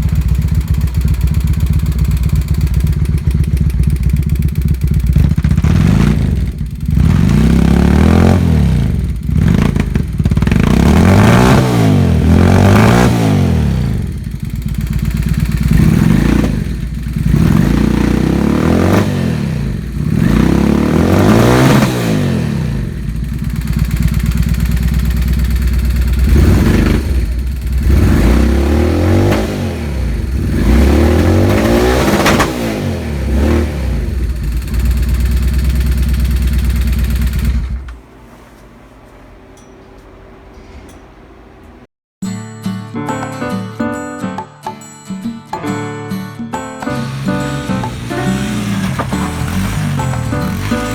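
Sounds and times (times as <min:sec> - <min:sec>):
motorcycle engine revving: 0:00.0 - 0:38.1, 0:46.9 - 0:50.9.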